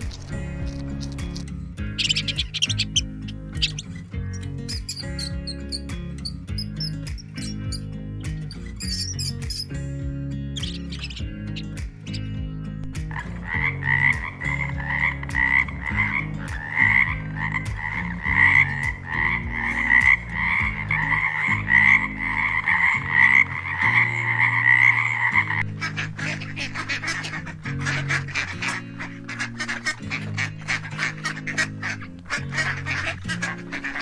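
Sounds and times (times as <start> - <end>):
tree frog croaking: 0.0 - 7.8, 13.1 - 34.0
background music: 0.0 - 34.0
harsh animal call: 1.1 - 4.0, 10.6 - 12.3, 13.1 - 34.0.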